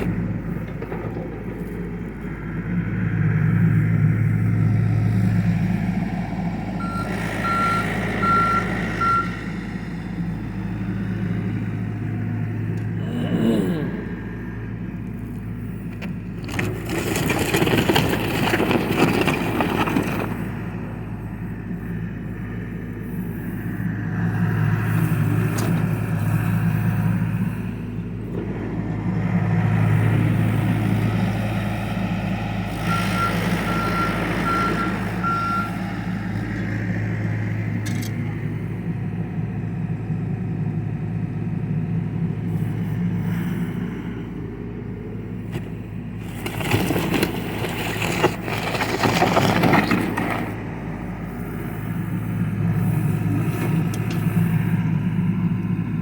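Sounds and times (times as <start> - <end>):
machine clattering and scraping: 0.0 - 2.1, 16.4 - 20.6, 45.5 - 50.6
excavator diesel engine running: 0.0 - 56.0.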